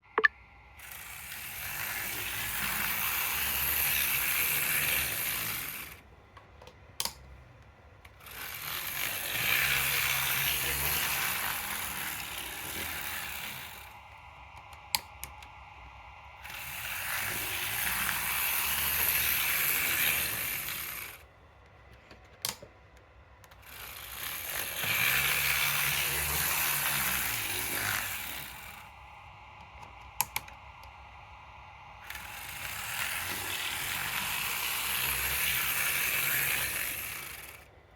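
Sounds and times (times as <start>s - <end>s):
model locomotive motor whirring: 0.8s - 6.1s, 8.0s - 22.6s, 23.4s - 37.9s.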